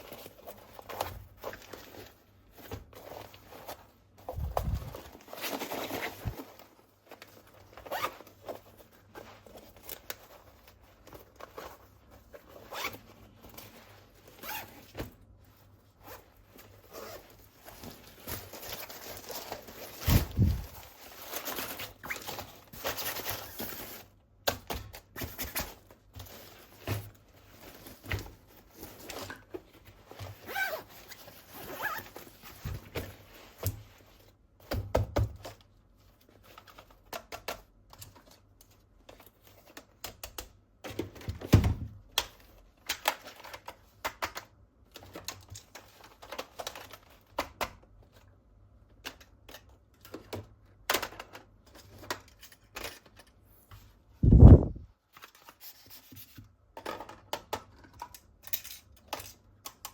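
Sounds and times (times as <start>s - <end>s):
plastic packaging rustling: 0.0s - 34.3s.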